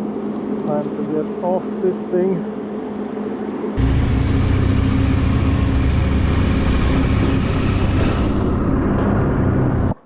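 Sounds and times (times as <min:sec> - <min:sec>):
steady rushing noise: 0:01.4 - 0:10.0
motorcycle engine running: 0:03.8 - 0:10.0.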